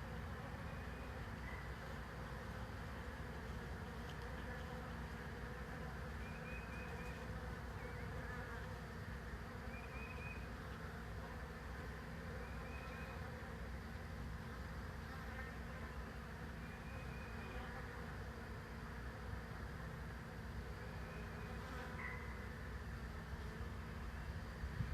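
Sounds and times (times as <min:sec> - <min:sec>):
swarm of bees buzzing: 0:00.0 - 0:24.9.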